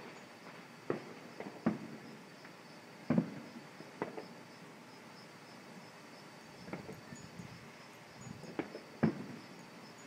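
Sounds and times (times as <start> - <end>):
fireworks bangs: 0.0 - 2.2, 3.0 - 4.4, 6.6 - 7.0, 8.4 - 9.5.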